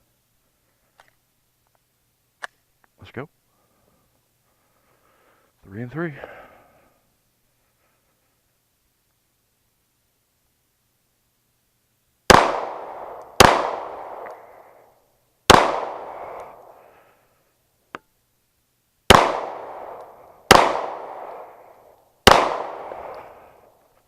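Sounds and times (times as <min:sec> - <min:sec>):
pistol shots with echo: 0:12.3 - 0:14.7, 0:15.5 - 0:16.8, 0:19.1 - 0:23.7.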